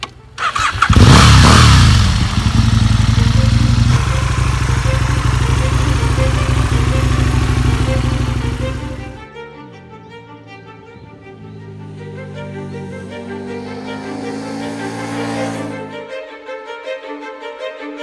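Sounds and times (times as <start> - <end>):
motorcycle engine starting and idling: 0.0 - 9.2, 12.0 - 16.0.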